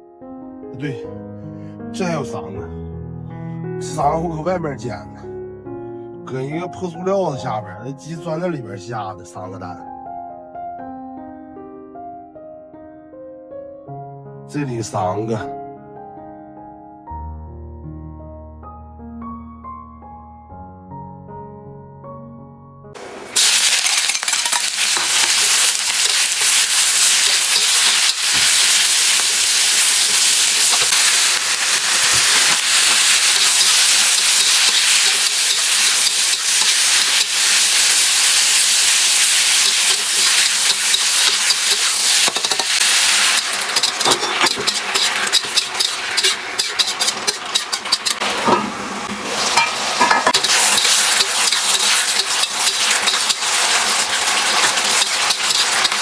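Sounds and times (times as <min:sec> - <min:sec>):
food sizzling in a pan: 0:23.0 - 0:56.0
oil crackling and spitting: 0:38.9 - 0:48.2, 0:50.3 - 0:56.0.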